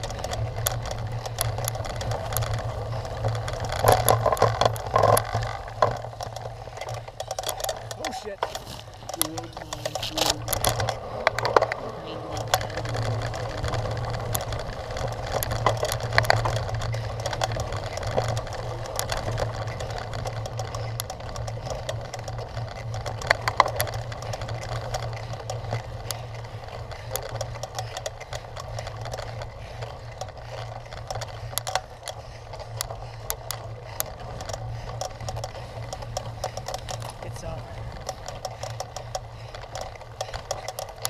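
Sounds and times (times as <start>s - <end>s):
bike clicks and rattles: 0.0s - 41.0s
bike tyres rolling rumble: 0.0s - 41.0s.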